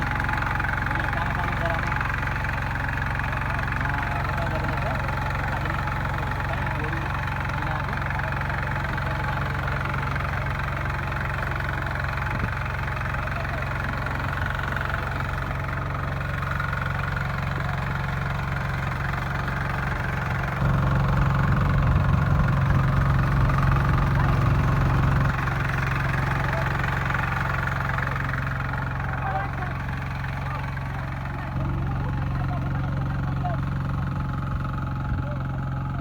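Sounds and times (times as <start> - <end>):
hand tractor engine running: 0.0 - 36.0.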